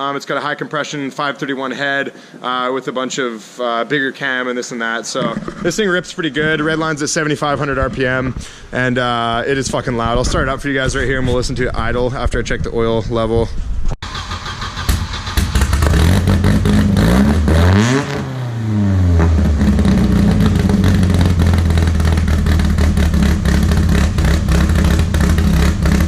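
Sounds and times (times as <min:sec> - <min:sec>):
car engine starting and revving: 0:14.0 - 0:26.0.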